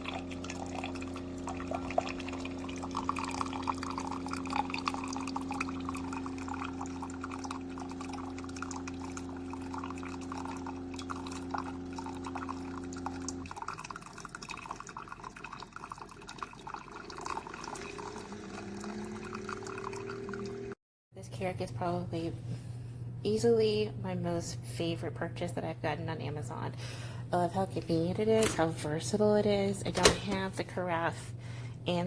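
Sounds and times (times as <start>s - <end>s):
coffee pouring and dripping: 0.0s - 20.8s
coffee maker pump hum: 0.0s - 32.0s.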